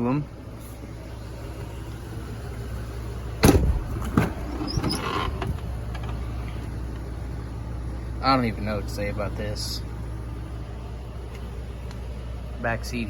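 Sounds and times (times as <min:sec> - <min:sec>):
truck engine idling: 0:00.0 - 0:13.0
loud knock: 0:03.4 - 0:04.4
cab creaking: 0:03.4 - 0:06.7.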